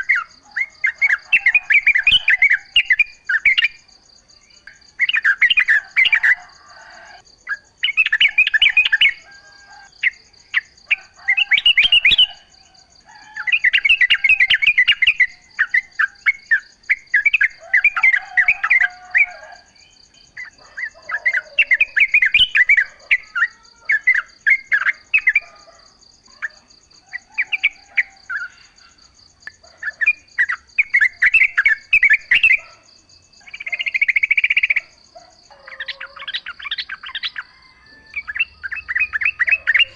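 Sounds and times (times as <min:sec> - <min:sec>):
bird warbling: 0:33.4 - 0:39.9.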